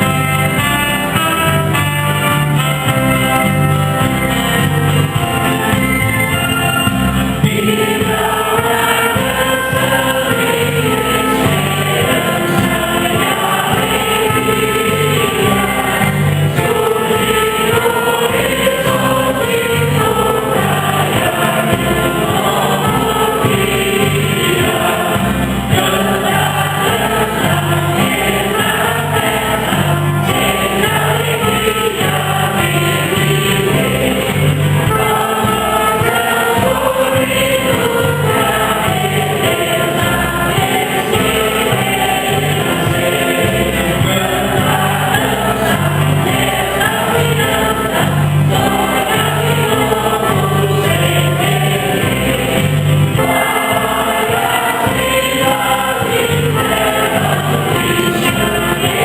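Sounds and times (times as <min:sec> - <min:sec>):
group singing a hymn: 0:00.0 - 0:59.0.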